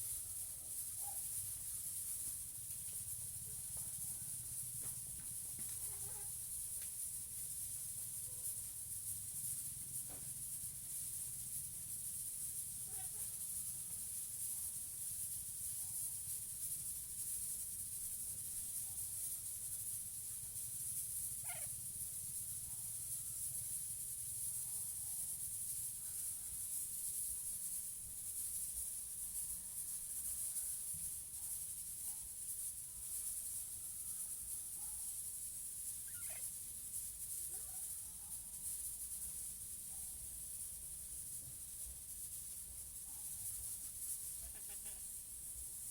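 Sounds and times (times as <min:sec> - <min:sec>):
steady high hiss: 0:00.0 - 0:45.9
faint parrot calls: 0:21.4 - 0:21.8, 0:36.0 - 0:36.5, 0:44.4 - 0:45.1.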